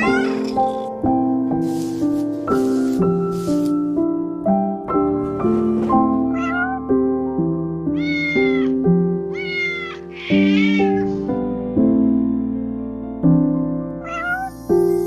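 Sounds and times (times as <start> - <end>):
cat meowing: 0.0 - 0.6, 6.3 - 6.9, 7.9 - 11.2, 14.0 - 14.7
keyboard music: 0.0 - 5.4.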